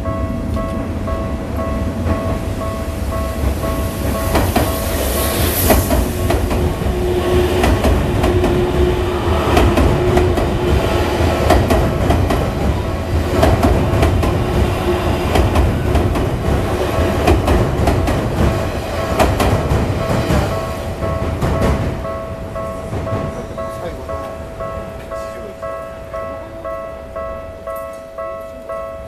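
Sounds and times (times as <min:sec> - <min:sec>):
electric train running past: 0:00.0 - 0:29.0
level-crossing warning bell: 0:00.0 - 0:29.0
steady train whine: 0:00.0 - 0:29.0.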